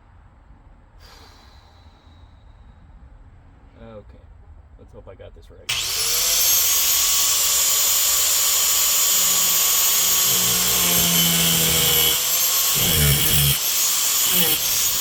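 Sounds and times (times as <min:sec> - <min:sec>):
cut-off grinder whining: 0:05.7 - 0:15.0
grinder cutting sheet metal: 0:05.7 - 0:15.0.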